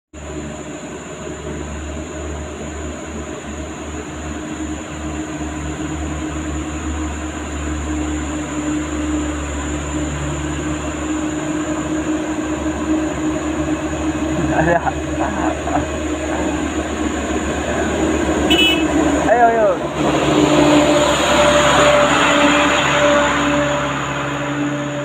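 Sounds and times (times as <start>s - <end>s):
truck diesel engine droning: 0.1s - 25.0s.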